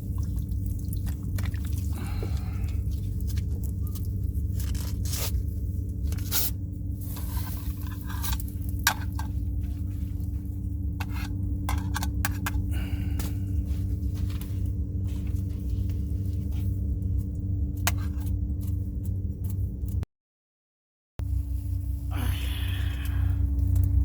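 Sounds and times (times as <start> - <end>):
steady low rumble: 0.0 - 20.0, 21.2 - 24.0
handling noise scrapes and clicks: 3.3 - 5.5, 6.1 - 9.4, 11.0 - 12.6, 14.2 - 20.0.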